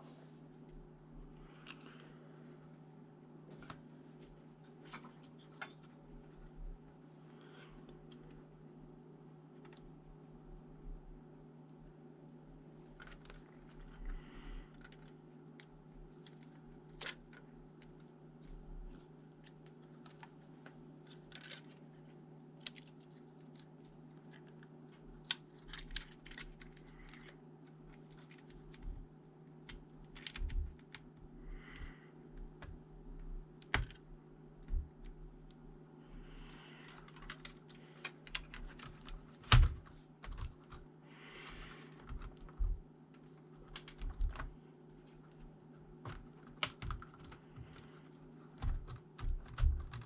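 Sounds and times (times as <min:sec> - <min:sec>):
steady low hum: 0:00.0 - 0:50.0
computer keyboard typing: 0:33.6 - 0:34.0, 0:37.0 - 0:40.8, 0:43.6 - 0:44.5, 0:46.0 - 0:48.0, 0:48.6 - 0:50.0.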